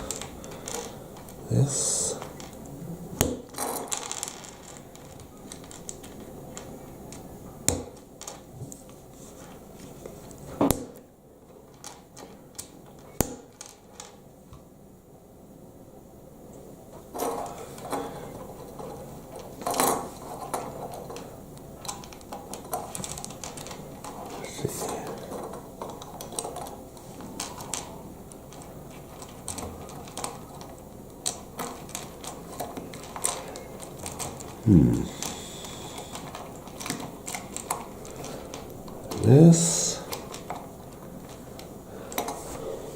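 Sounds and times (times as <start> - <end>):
plastic pieces clicking and rattling: 3.5 - 7.2, 21.8 - 26.7, 28.5 - 34.6, 36.0 - 42.4
brief voice: 34.6 - 35.4, 39.1 - 40.1.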